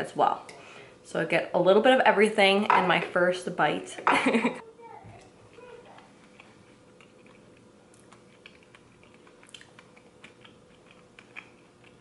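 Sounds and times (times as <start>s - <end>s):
faint chewing: 5.2s - 12.0s.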